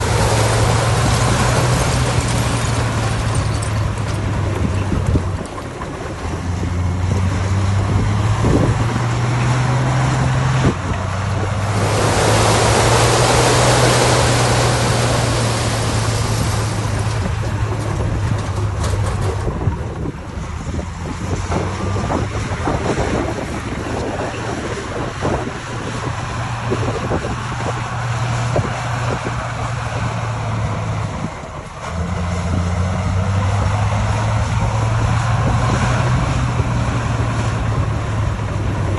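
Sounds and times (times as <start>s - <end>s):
diesel machinery engine running: 0.0s - 38.9s
loud rushing noise: 7.8s - 17.8s.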